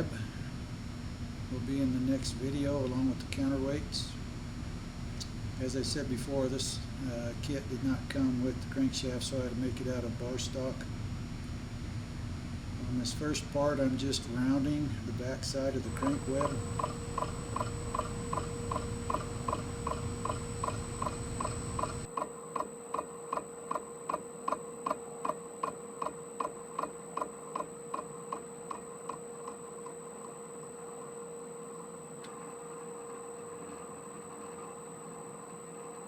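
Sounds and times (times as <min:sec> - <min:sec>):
lathe whine: 0:00.0 - 0:22.2
regular ticking of lathe cut: 0:15.9 - 0:22.1.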